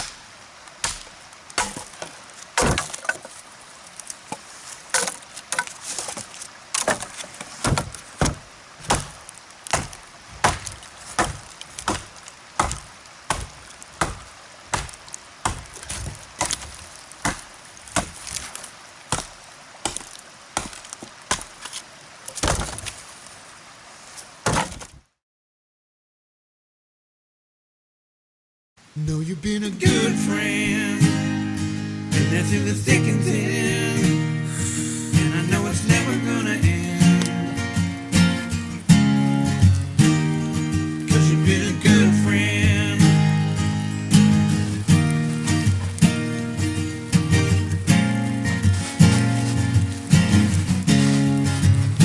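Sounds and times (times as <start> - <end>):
axe chopping wood: 0.0 - 0.2, 0.8 - 3.3, 4.3 - 21.6, 22.4 - 23.0, 24.4 - 25.0.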